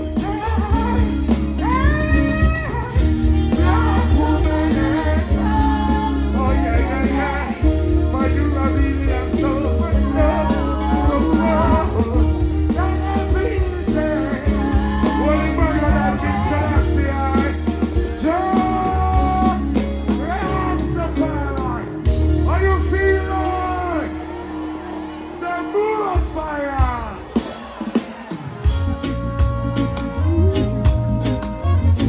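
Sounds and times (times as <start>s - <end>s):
person singing: 0.0s - 21.6s
live reggae band: 0.0s - 32.0s.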